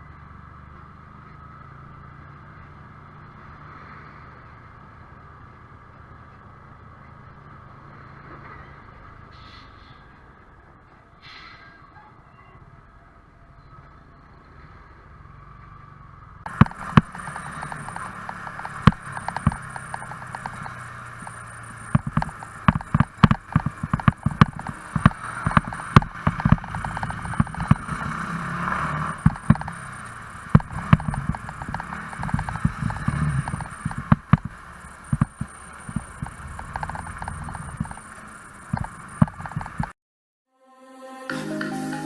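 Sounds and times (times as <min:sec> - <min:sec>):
motorcycle ride rushing noise: 0:15.2 - 0:40.0
sharp knocks and bumps: 0:16.5 - 0:39.9.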